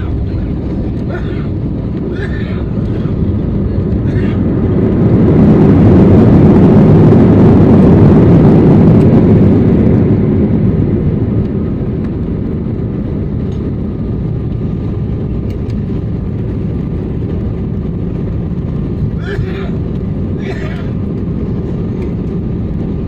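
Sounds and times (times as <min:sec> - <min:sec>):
jet airliner cabin rumble: 0:00.0 - 0:23.0.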